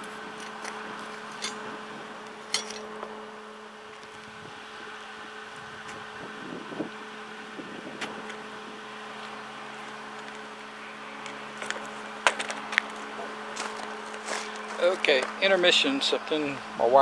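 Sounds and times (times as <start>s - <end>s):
welder electrical hum: 0.0s - 17.0s.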